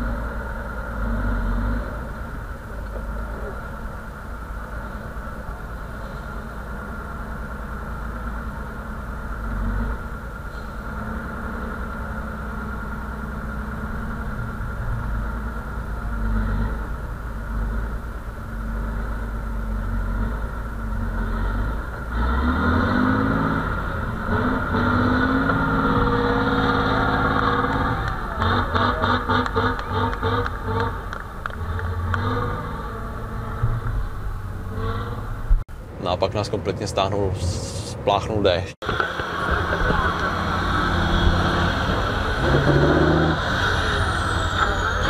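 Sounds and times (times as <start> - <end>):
truck engine revving under load: 0.0 - 35.7, 38.8 - 45.0.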